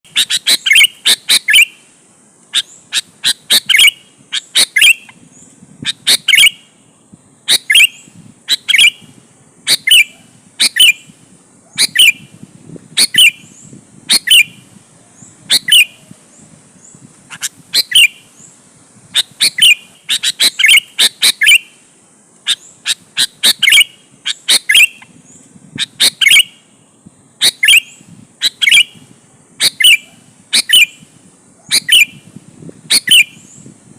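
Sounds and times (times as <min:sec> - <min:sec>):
bulbul singing: 0:00.0 - 0:33.8
faint high whine: 0:00.1 - 0:33.9.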